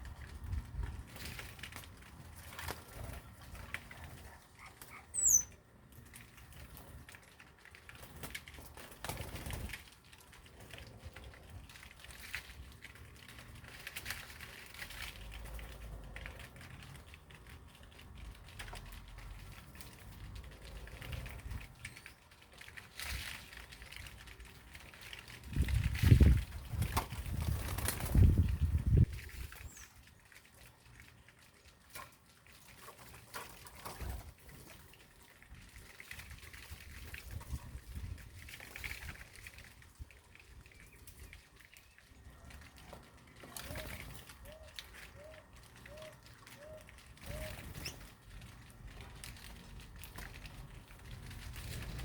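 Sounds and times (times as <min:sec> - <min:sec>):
birds fluttering and rustling: 0:00.0 - 0:52.0
high falling bird chirp: 0:05.1 - 0:05.6.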